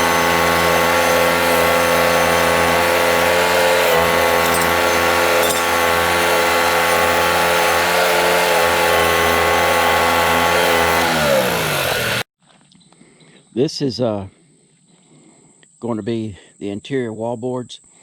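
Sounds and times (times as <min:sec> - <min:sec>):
bandsaw mill running: 0:00.0 - 0:12.3.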